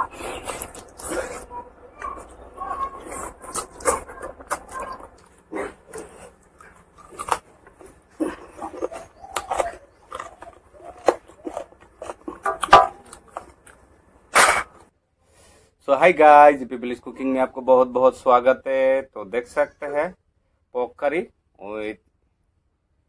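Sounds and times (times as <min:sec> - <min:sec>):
man chewing and smacking lips: 0:00.0 - 0:14.9.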